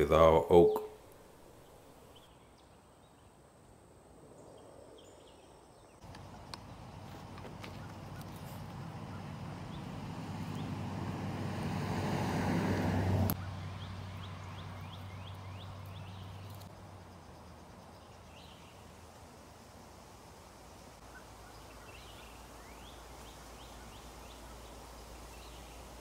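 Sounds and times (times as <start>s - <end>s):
bird chirping: 0.4s - 3.4s, 13.4s - 16.7s.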